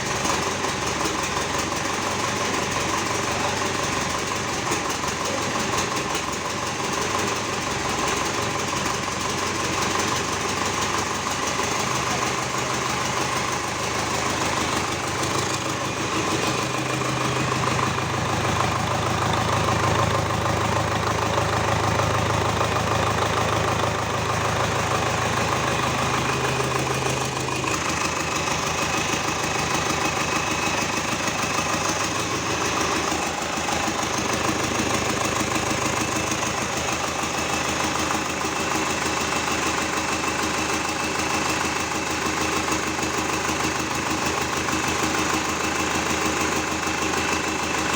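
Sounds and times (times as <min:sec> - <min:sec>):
diesel truck engine clattering: 0:00.0 - 0:47.9.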